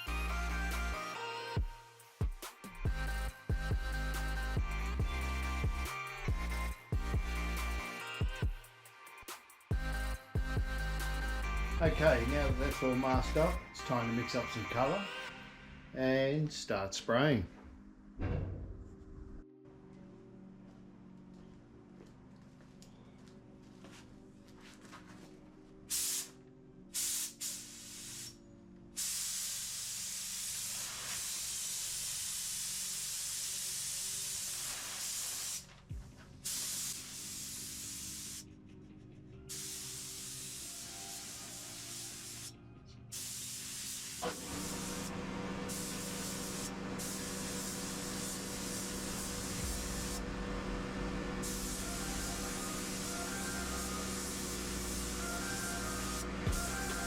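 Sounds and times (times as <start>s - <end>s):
paint spray gun hissing: 25.9s - 26.4s, 27.0s - 28.4s, 29.0s - 35.7s, 36.4s - 38.4s, 39.5s - 50.3s, 50.9s - 57.0s.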